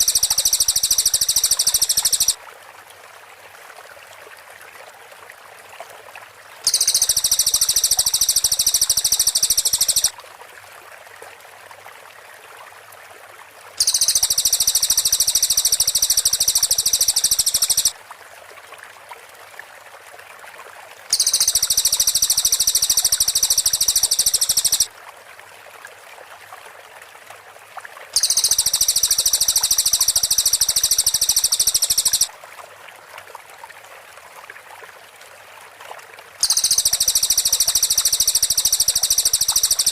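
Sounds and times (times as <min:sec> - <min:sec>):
bird rattling trill: 0:00.0 - 0:02.4, 0:06.7 - 0:10.1, 0:13.8 - 0:17.9, 0:21.1 - 0:24.9, 0:28.2 - 0:32.3, 0:36.4 - 0:39.9
steady background hiss: 0:00.0 - 0:02.4, 0:06.7 - 0:10.1, 0:13.8 - 0:18.0, 0:21.1 - 0:24.9, 0:28.2 - 0:32.3, 0:36.4 - 0:39.9.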